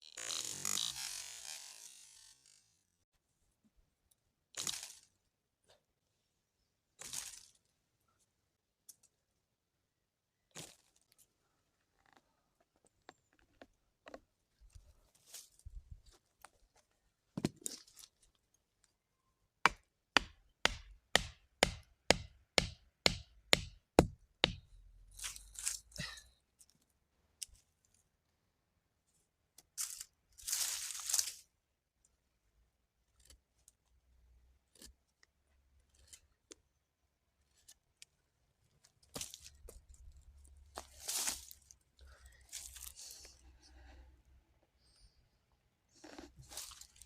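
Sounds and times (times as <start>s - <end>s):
rustling tearing noises: 29.8s - 31.5s.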